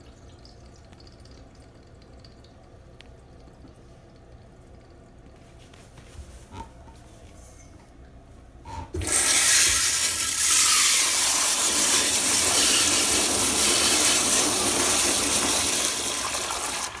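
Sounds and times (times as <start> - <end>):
toilet flushing: 8.9 - 17.0.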